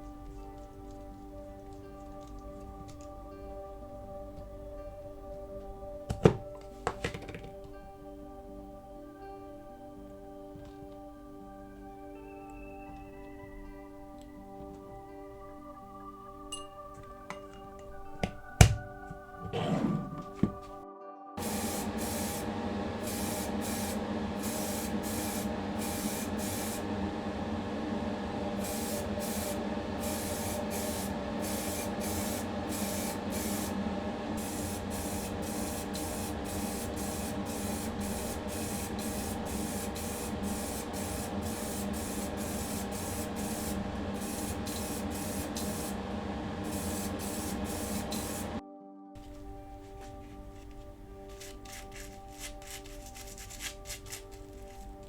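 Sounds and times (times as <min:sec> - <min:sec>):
spray paint hissing: 0:18.2 - 0:20.6, 0:21.4 - 0:26.9, 0:28.6 - 0:33.8, 0:34.4 - 0:46.0, 0:46.6 - 0:48.6, 0:49.2 - 0:55.0
steady hum: 0:21.4 - 0:48.6.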